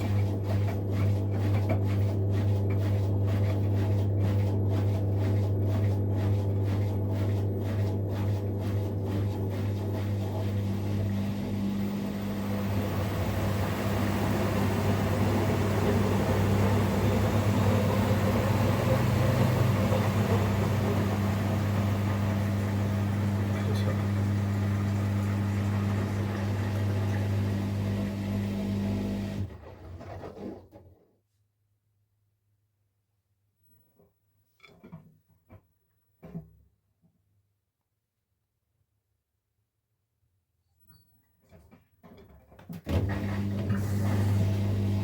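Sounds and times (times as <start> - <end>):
washing machine motor hum: 0.0 - 30.4, 42.8 - 45.0.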